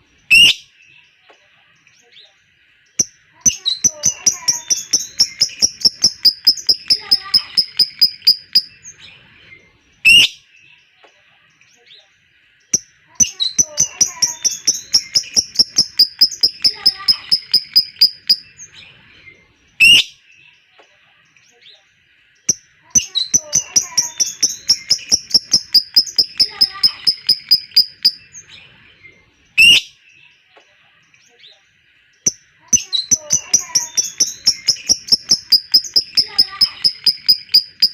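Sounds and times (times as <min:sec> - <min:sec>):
bird chirping: 0:00.0 - 0:37.9
lovebird chattering trill: 0:03.0 - 0:08.8, 0:12.8 - 0:18.7, 0:22.5 - 0:28.4, 0:32.3 - 0:37.9
harsh bird squawk: 0:03.8 - 0:08.7, 0:13.6 - 0:18.4, 0:23.3 - 0:28.2, 0:33.0 - 0:37.9.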